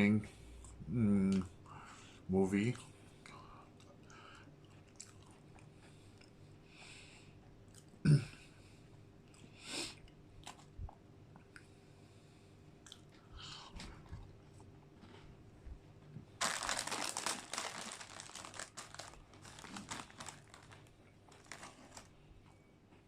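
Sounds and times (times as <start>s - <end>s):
chewing with small crunches: 2.8s - 8.0s, 8.8s - 11.8s, 12.8s - 15.5s, 16.9s - 23.0s.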